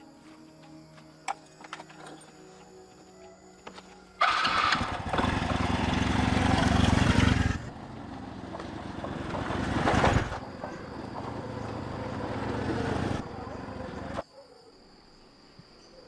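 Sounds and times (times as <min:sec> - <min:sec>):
motorcycle engine revving: 0:04.2 - 0:14.2.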